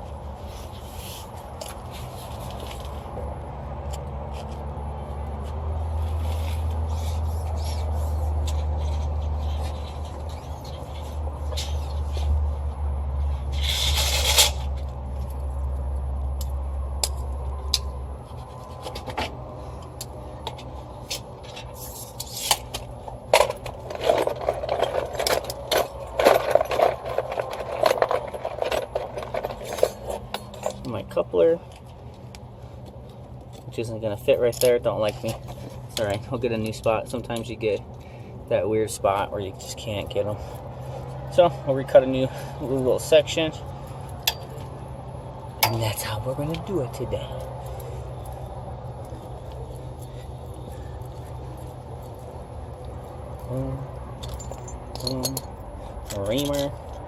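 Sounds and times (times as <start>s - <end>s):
copper tubing scraping and rubbing: 6.0s - 12.6s, 13.2s - 15.3s, 20.5s - 31.0s
rapid metallic clicks and clinks: 21.1s - 31.0s, 44.0s - 44.7s, 49.1s - 57.0s.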